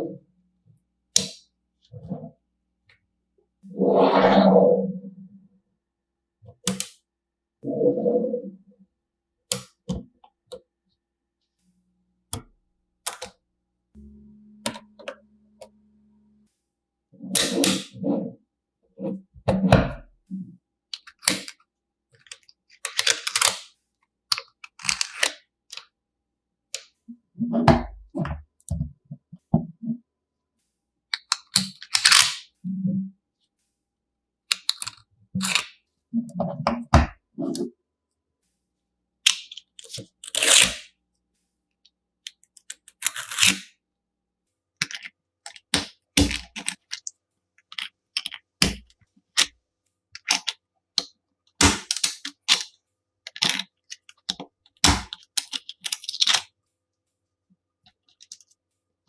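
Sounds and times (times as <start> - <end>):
low hum: 14.0 - 16.6
plastic magnetic pieces clicking: 20.9 - 23.7, 24.3 - 25.9, 31.1 - 32.5, 34.5 - 35.8, 39.2 - 40.9, 44.8 - 49.5, 50.2 - 51.1, 51.8 - 56.5.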